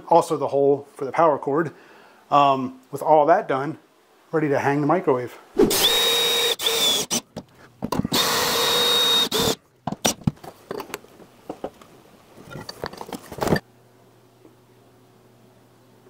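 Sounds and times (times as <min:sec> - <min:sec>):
power drill whining: 0:05.7 - 0:07.2, 0:08.1 - 0:09.6.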